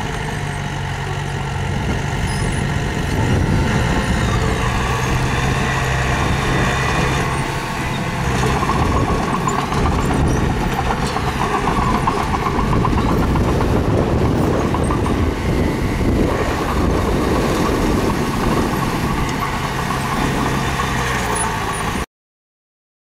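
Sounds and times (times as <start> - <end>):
diesel engine under load: 0.0 - 22.1
metallic track clatter: 4.5 - 22.0.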